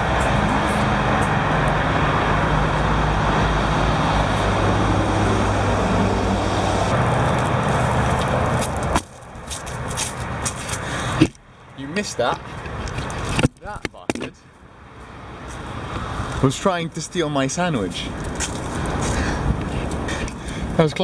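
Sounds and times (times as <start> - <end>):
vehicle engine running: 0.0 - 10.9
road traffic noise: 0.0 - 21.0.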